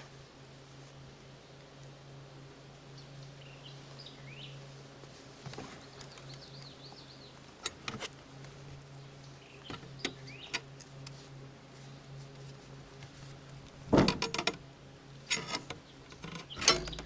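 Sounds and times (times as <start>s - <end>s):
steady low hum: 0.0s - 17.0s
birds chirping: 2.8s - 4.7s, 5.5s - 7.8s, 8.7s - 11.0s, 14.9s - 17.0s.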